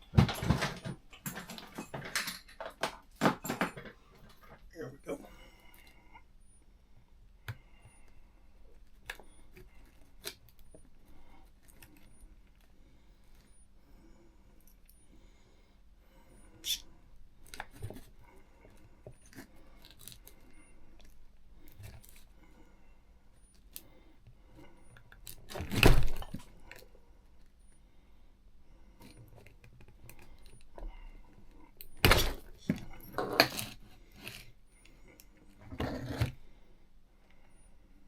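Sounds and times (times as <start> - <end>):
tools clattering: 0.1 - 4.6, 31.9 - 34.3
tools clicking and rattling: 0.2 - 4.4.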